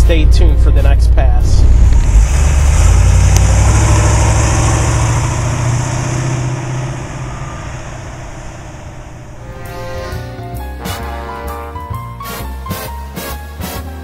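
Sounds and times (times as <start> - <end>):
car engine driving past: 1.6 - 11.9.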